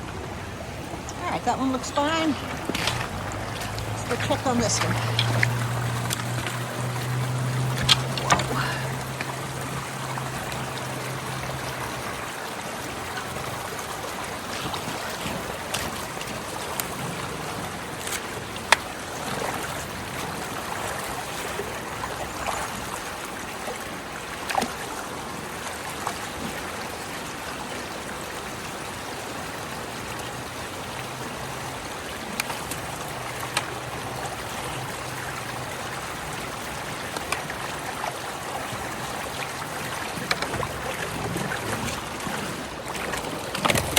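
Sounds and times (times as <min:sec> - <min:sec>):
water rushing through culvert: 0:00.0 - 0:43.9.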